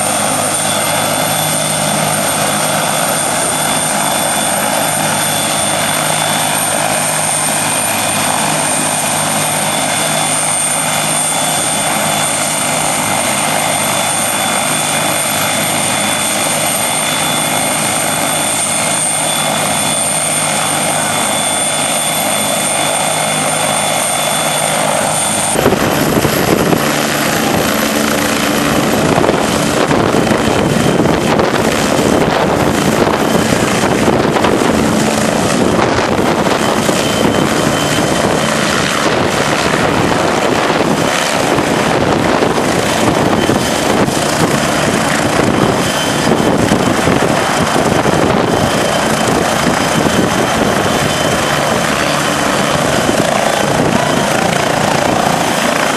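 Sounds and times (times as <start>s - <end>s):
helicopter rotor wash rush: 0.0s - 55.9s
helicopter turbine whine: 0.0s - 55.9s.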